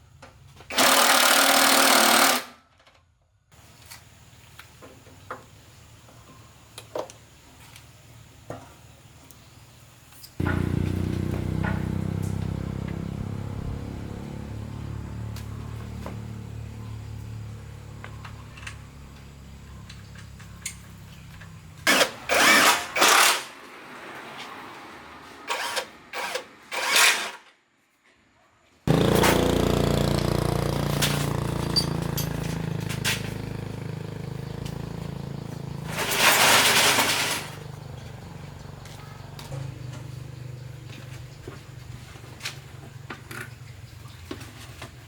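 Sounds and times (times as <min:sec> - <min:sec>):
small motorbike engine running: 0:00.7 - 0:02.5, 0:10.4 - 0:23.4, 0:28.9 - 0:45.0
loud engine bursts: 0:00.7 - 0:02.6, 0:10.4 - 0:19.6, 0:28.9 - 0:40.1.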